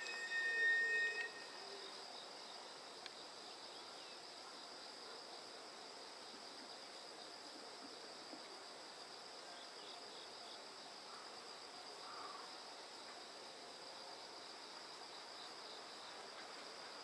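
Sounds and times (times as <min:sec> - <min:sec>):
high-pitched train tone: 0:00.0 - 0:02.1
insects chirring: 0:00.0 - 0:17.0.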